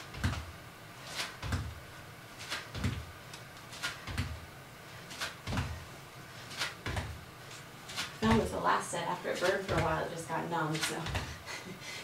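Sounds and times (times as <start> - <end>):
feet thudding on floor: 0.0 - 0.5, 1.1 - 3.1, 3.8 - 4.5, 5.1 - 5.9, 6.5 - 7.2.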